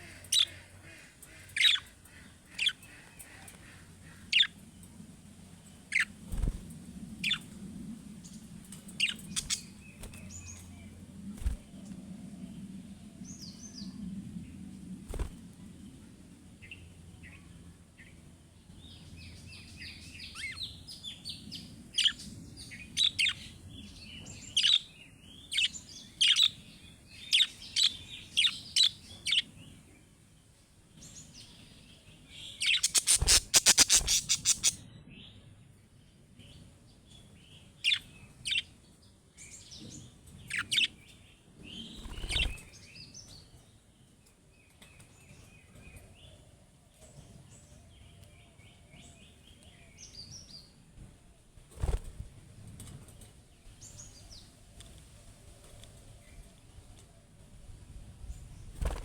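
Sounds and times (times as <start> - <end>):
budgerigars chirping and chattering: 0.0 - 4.6, 9.0 - 9.7, 32.6 - 34.8.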